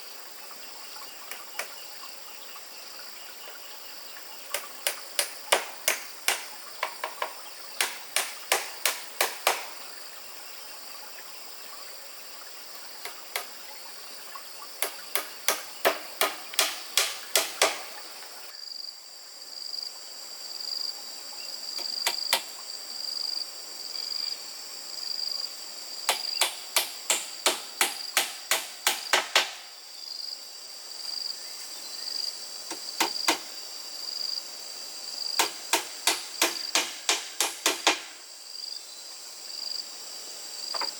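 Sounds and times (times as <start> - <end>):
high insect trill: 0.0 - 40.9
hammer driving nails into wood: 4.8 - 9.7, 14.8 - 17.9, 26.1 - 29.6, 32.7 - 33.5, 35.4 - 38.2.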